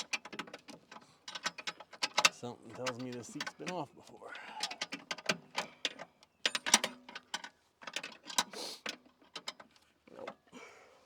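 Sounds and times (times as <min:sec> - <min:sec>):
wrenches clicking on steel bolts: 0:00.0 - 0:03.8.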